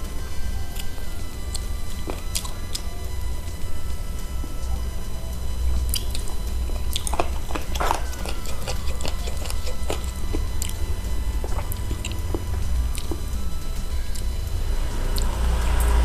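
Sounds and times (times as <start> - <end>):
close chewing and biting: 0.0 - 15.3
steady low hum: 0.0 - 16.0.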